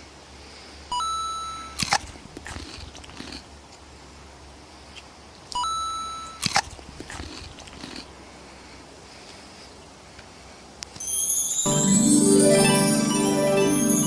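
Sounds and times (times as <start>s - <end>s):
electronic two-note beep: 1.0s - 1.8s
sharp double click: 5.5s - 7.2s.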